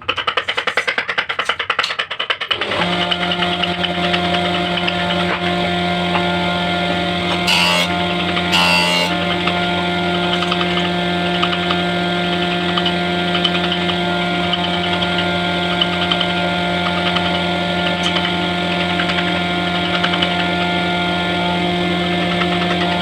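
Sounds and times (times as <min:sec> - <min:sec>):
motor hum: 0:07.1 - 0:09.4.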